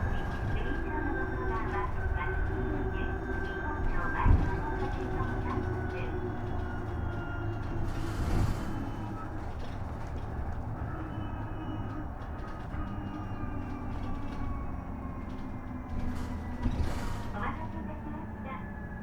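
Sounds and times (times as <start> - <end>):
road rumble: 0.0 - 19.0
hiss and thump: 16.0 - 17.4.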